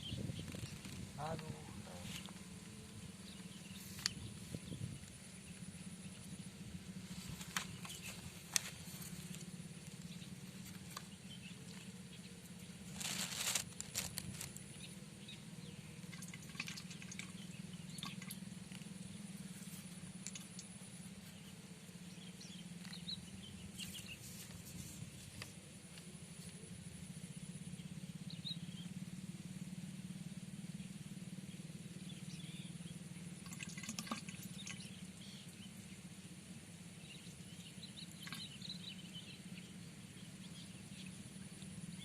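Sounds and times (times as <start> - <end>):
steady low hum: 0.0 - 42.0
brief rustle: 12.9 - 14.6.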